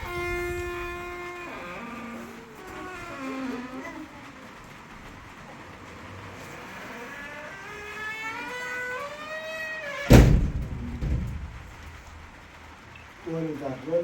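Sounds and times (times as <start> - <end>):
loud thump: 10.1 - 12.4.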